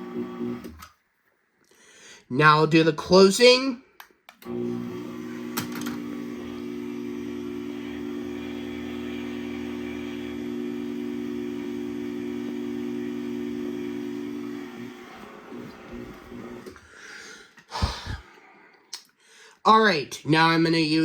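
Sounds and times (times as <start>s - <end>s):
garage door opener motor hum: 0.0s - 0.8s, 4.4s - 16.8s.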